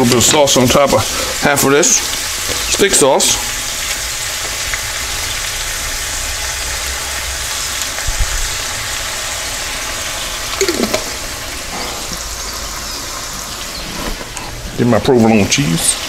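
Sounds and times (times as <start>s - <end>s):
steak and onions sizzling in a wok: 0.0s - 16.0s
sauce pouring from a jar: 10.5s - 12.1s
short sound falling in pitch: 10.6s - 11.4s.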